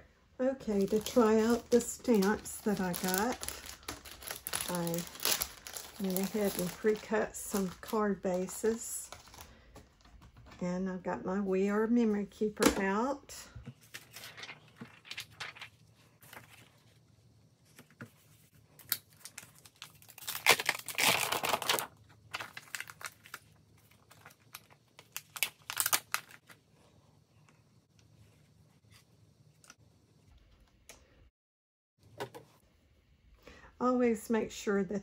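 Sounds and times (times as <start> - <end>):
paper and card rustling: 0.6 - 10.6, 13.6 - 17.1.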